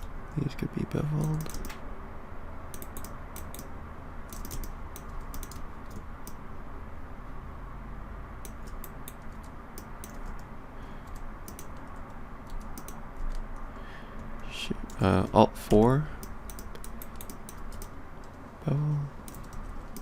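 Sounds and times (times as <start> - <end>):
low background hum: 0.0 - 20.0
keyboard keys clicking: 1.2 - 1.8, 2.7 - 3.7, 4.3 - 6.4, 8.4 - 15.1, 15.7 - 18.4, 19.2 - 20.0.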